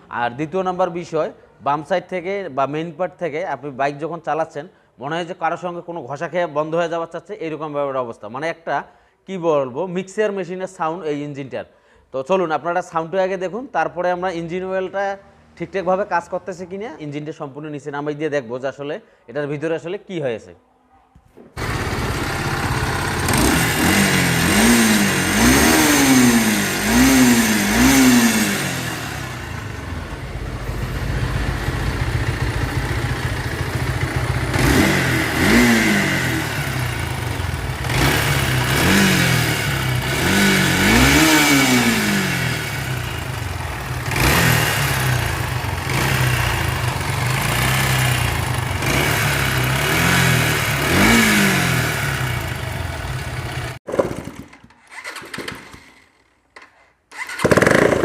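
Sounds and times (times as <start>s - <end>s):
grinding noise inside engine: 21.6s - 56.0s
motorcycle engine revving: 21.6s - 56.0s, 57.2s - 58.0s.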